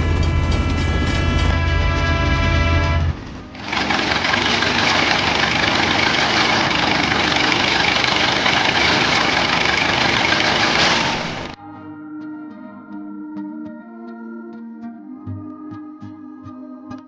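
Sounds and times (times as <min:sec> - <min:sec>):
machine engine rumbling: 0:00.0 - 0:11.6.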